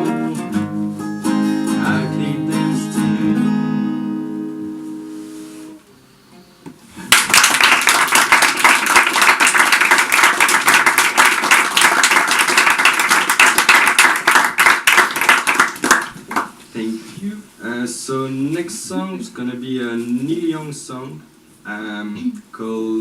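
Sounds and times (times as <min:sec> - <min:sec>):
acoustic guitar chord ringing: 0:00.0 - 0:07.1
audience applause: 0:07.0 - 0:16.6.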